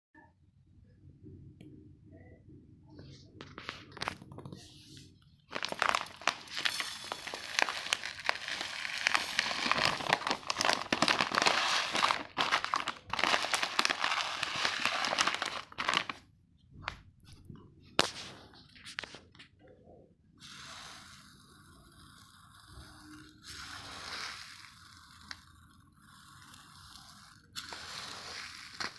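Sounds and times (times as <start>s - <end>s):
plastic packet crinkling: 5.5s - 16.2s, 22.7s - 28.9s.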